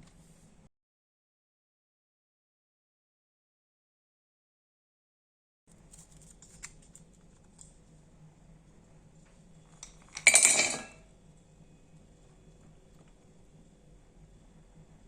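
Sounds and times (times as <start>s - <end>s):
utensil and dish clattering: 9.9s - 11.1s.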